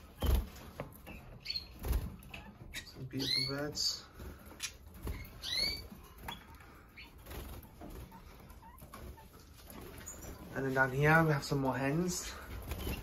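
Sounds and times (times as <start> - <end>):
birds moving in cages: 0.0 - 13.0
canaries chirping: 0.0 - 13.0.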